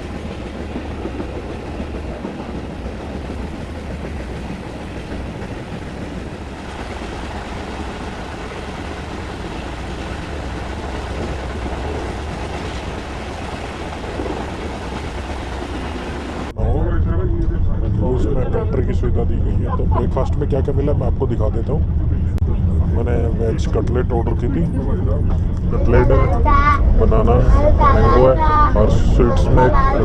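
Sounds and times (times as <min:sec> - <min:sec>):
train wheels on rails: 0:00.0 - 0:16.5.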